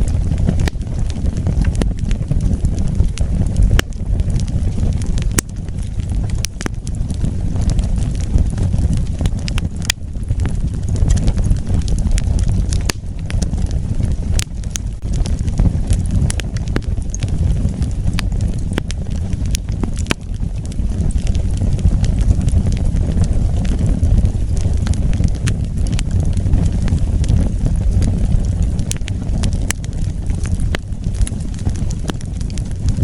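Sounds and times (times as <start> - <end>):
crackles and pops of burning wood: 0.0 - 33.0
wood fire burning: 0.0 - 33.0.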